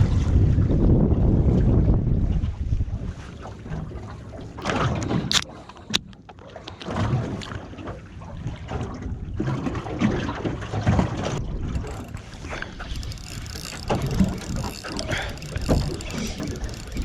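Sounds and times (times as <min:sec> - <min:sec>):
water slapping boat hull: 0:11.8 - 0:17.0.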